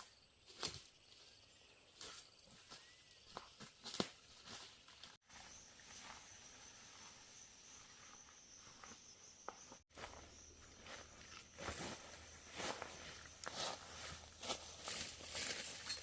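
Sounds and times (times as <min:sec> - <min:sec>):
footsteps: 0:02.0 - 0:16.0
high insect drone: 0:05.3 - 0:16.0.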